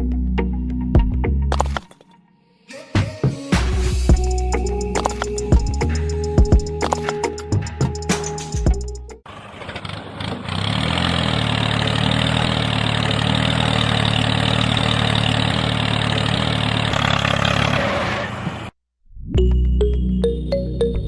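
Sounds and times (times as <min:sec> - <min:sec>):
small engine running: 0:09.3 - 0:18.7.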